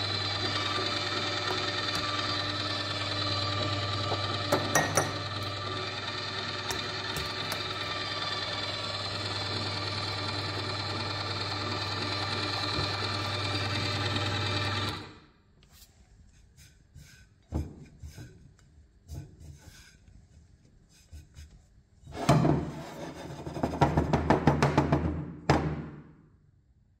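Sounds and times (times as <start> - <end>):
electric grinder motor: 0.0 - 15.2.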